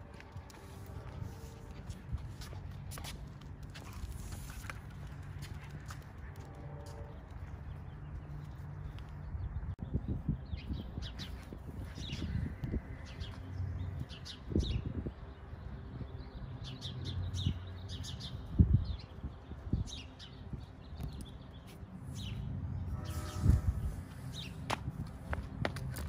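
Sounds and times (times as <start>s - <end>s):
small birds chirping: 7.5s - 24.7s.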